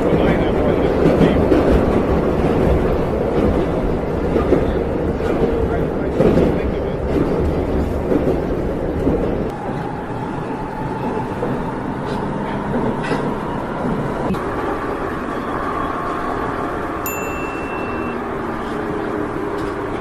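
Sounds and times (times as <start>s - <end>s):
subway train rumbling: 0.0s - 20.0s
short high beep: 17.1s - 18.2s.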